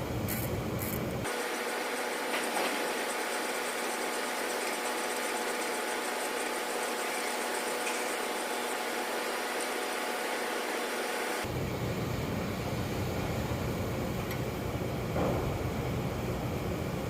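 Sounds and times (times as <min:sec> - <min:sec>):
small motor humming: 0:00.0 - 0:11.5.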